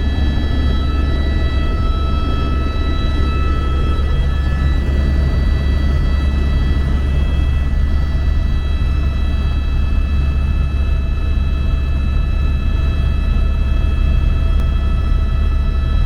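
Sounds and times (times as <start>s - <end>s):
high whining tones: 0.0s - 11.2s
helicopter rotor drone: 0.0s - 16.0s.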